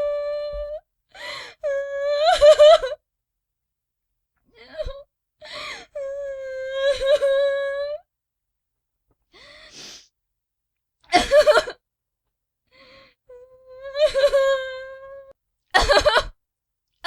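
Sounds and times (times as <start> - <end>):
woman gasping and sobbing: 0.0 - 2.9, 4.6 - 7.4.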